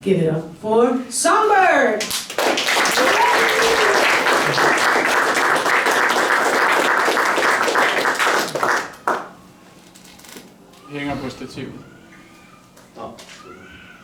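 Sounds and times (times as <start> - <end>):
audience applauding: 2.0 - 9.4
faint shout or cheer: 3.0 - 4.2.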